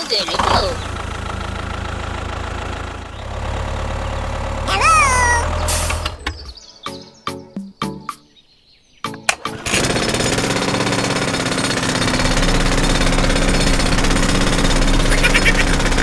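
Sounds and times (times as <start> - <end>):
small machine rattling and humming: 9.5 - 16.0.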